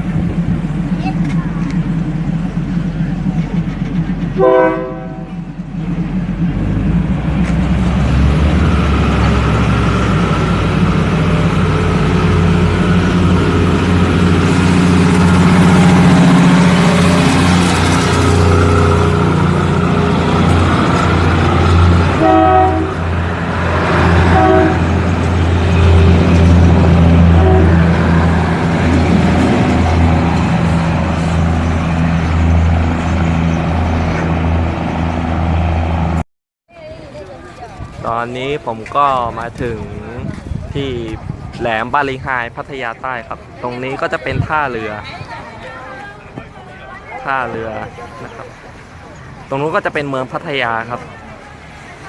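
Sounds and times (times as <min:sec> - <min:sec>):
train running with low drone: 0:00.0 - 0:52.0
train horn blasts: 0:04.4 - 0:05.4, 0:22.1 - 0:23.2, 0:24.2 - 0:25.0, 0:27.0 - 0:28.1.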